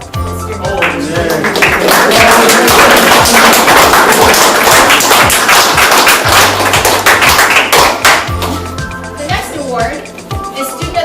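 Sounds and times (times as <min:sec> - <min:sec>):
background music with steady beat: 0:00.0 - 0:11.0
audience applauding: 0:00.8 - 0:08.7.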